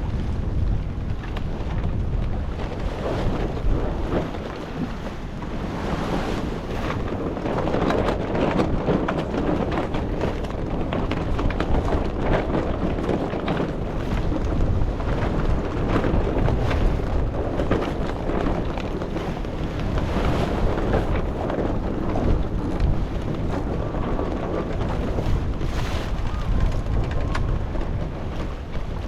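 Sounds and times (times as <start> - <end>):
wind buffeting microphone: 0.0 - 29.0
waves rushing: 2.4 - 7.8, 13.4 - 29.0.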